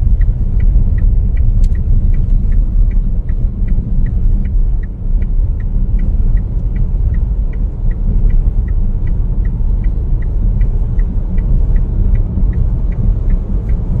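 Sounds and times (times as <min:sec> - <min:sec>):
light ticking: 0:00.0 - 0:14.0
vehicle rumbling: 0:00.0 - 0:14.0.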